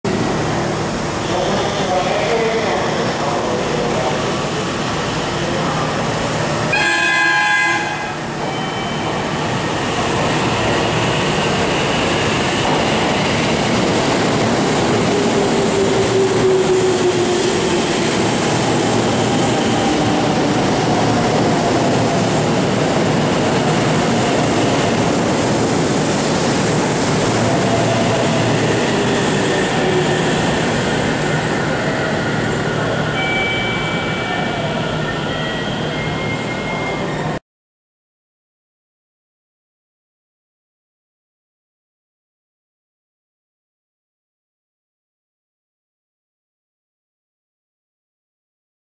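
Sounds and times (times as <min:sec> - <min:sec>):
train horn: 0:06.7 - 0:08.2
train wheels rumbling on rails: 0:08.4 - 0:33.0.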